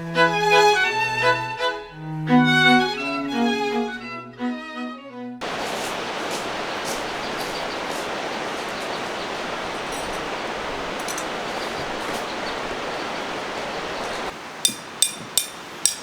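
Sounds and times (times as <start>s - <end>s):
mountain stream rushing: 5.4s - 16.0s
faint high bird chirps: 5.6s - 14.3s.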